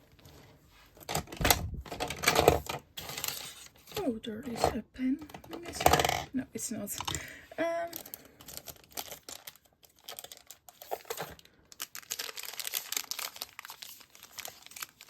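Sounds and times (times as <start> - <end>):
packaging crinkling and rustling: 7.9 - 15.0.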